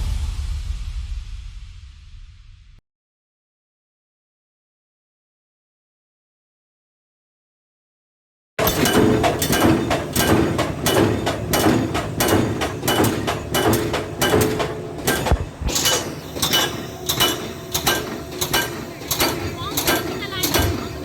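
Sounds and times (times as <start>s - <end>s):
engine and hydraulic noise: 8.6s - 21.0s
hydraulic attachment metallic knocks: 8.6s - 21.0s.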